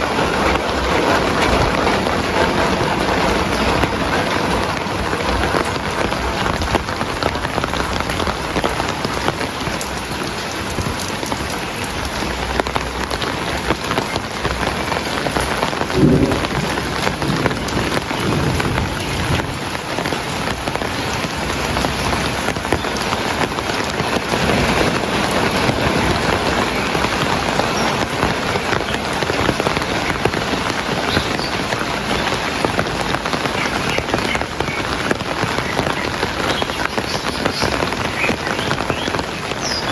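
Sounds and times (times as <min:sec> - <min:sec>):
heavy rain falling: 0:00.0 - 0:39.9
low rumble: 0:15.9 - 0:19.7.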